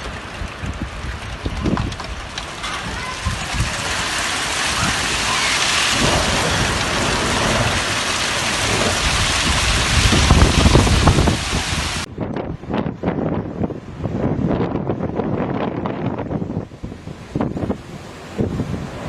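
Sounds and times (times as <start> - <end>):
heavy rain pouring: 0.0 - 12.1
thunder rumbles: 0.0 - 16.6
strong wind: 0.0 - 19.0.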